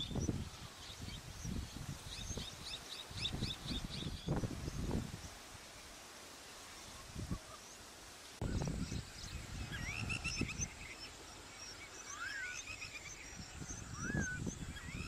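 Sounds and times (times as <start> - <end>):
birds chirping: 6.5 - 15.0
whistled bird calls: 8.5 - 15.0.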